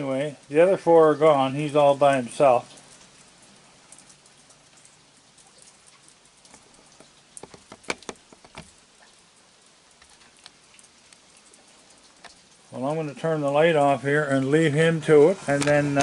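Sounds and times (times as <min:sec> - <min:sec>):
rain pattering: 0:00.0 - 0:16.0
sharp clicks and knocks: 0:06.4 - 0:08.8.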